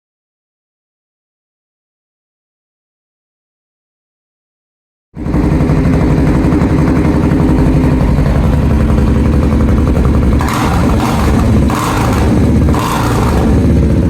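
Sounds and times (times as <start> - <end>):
engine idling: 5.2 - 14.0.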